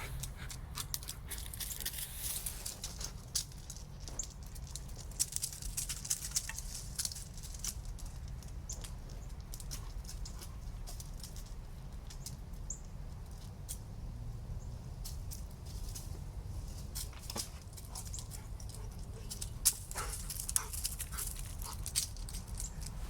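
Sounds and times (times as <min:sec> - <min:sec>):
low steady rumble: 0:00.0 - 0:05.8, 0:10.6 - 0:23.0
dog mouthing toy clicks and scuffs: 0:00.1 - 0:11.6, 0:17.3 - 0:23.0.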